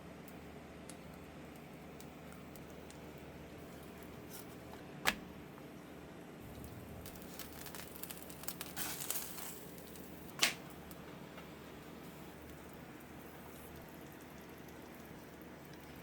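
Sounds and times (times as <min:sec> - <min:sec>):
crinkling: 0:06.5 - 0:11.0.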